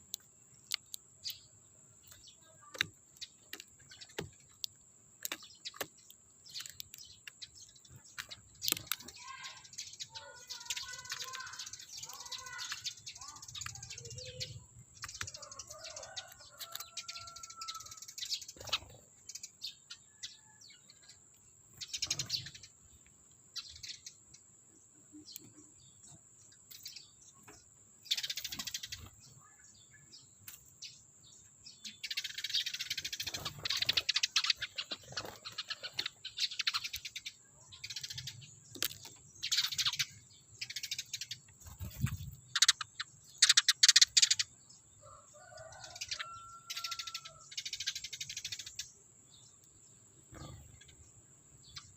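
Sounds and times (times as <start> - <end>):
sparrows chirping: 0.0 - 51.9.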